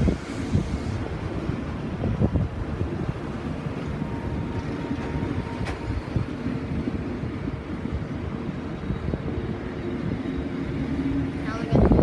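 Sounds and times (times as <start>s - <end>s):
low rumble of a train: 0.0s - 12.0s
wind buffeting microphone: 0.0s - 12.0s.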